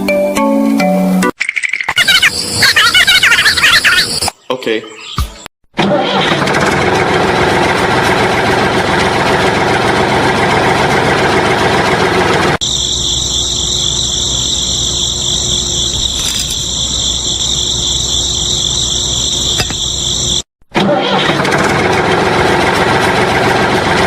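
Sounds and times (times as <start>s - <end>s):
clattering mechanical noise: 5.8s - 12.6s, 13.3s - 24.0s.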